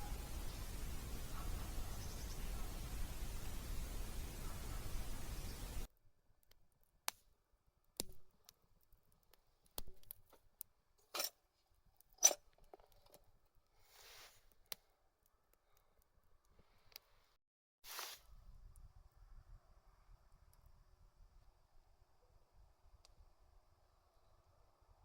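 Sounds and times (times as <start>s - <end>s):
short hiss: 13.8s - 14.4s, 17.9s - 18.4s.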